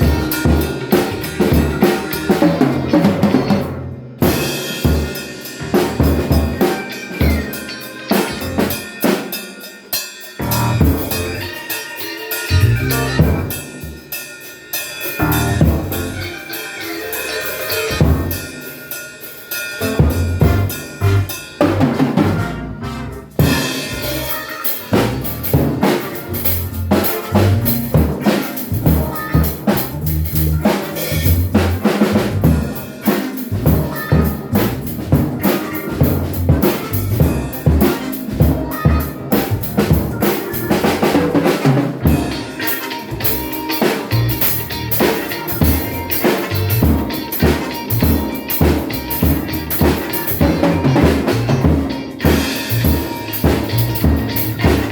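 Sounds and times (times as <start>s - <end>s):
drum kit groove: 0.0s - 54.9s.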